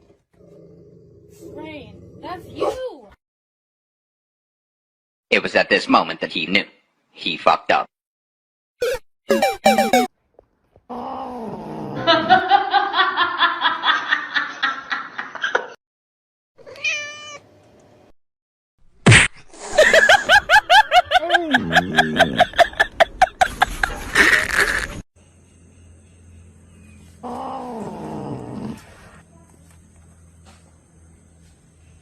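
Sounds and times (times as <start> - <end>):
cat yowling and meowing: 16.7 - 17.4.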